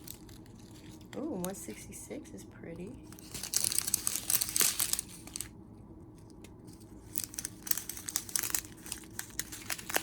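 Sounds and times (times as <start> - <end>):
plastic bags crinkling: 3.1 - 5.6, 6.9 - 10.0.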